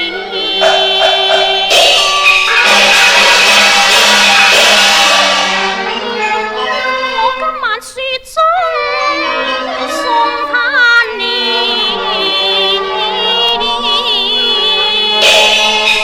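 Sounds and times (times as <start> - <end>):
woman singing: 0.0 - 2.2, 5.8 - 16.0
instrumental ensemble playing: 0.0 - 7.5, 9.0 - 16.0.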